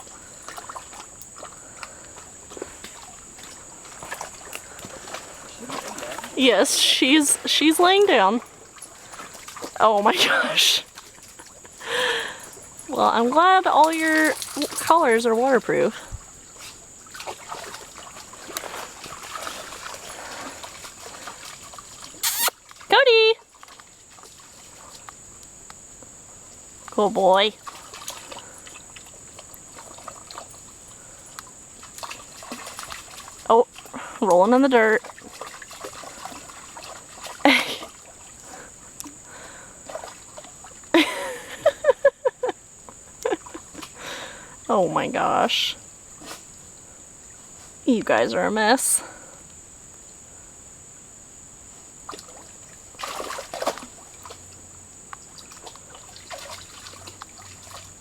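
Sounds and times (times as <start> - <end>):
water trickling: 0.0 - 49.0, 52.0 - 58.0
dogs splashing in shallow water: 0.0 - 49.3, 52.0 - 58.0
woman laughing: 10.1 - 10.8, 37.4 - 37.9, 40.9 - 42.6, 43.2 - 43.9.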